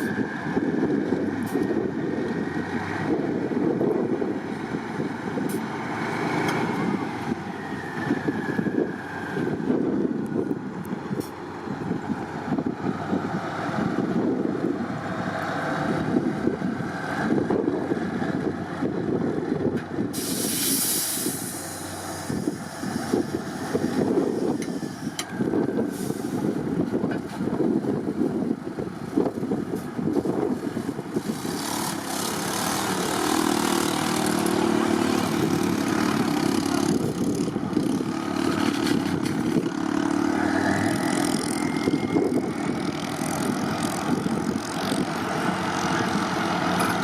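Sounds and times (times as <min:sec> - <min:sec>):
heavy truck engine revving: 0:00.0 - 0:47.0
air hiss: 0:20.1 - 0:23.7.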